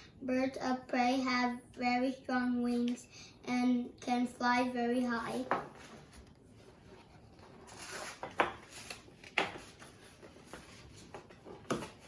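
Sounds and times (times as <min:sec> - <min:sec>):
book pages rustling and turning: 0:05.5 - 0:12.0.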